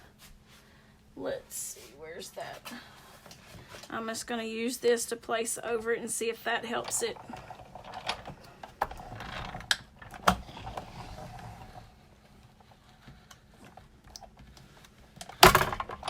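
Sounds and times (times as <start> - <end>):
hand-cranked machine creaking and grinding: 6.7 - 12.0, 15.2 - 16.0.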